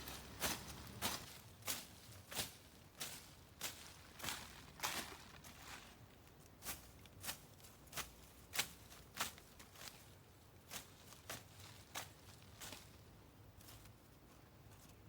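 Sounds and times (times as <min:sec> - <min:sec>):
footsteps walking: 0:00.0 - 0:06.9.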